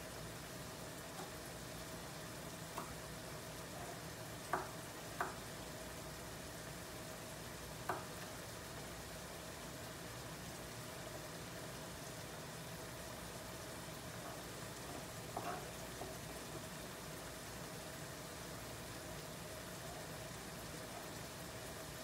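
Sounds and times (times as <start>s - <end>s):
food sizzling in a pot: 0.0s - 22.0s.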